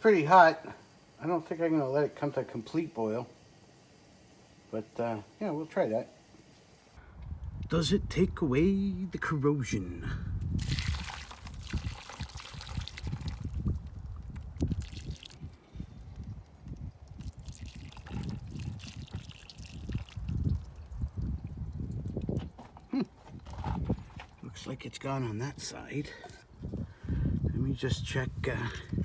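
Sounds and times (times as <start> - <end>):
hot water splashing and dripping: 0.0 - 7.0, 10.4 - 22.7.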